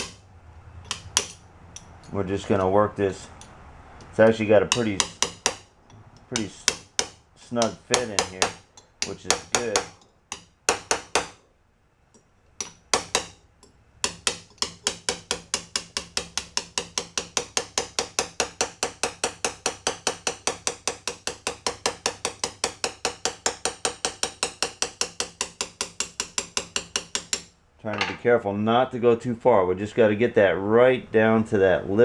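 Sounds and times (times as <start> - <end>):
hammer tapping on a punch: 4.7 - 11.4, 12.6 - 13.4, 14.0 - 27.5.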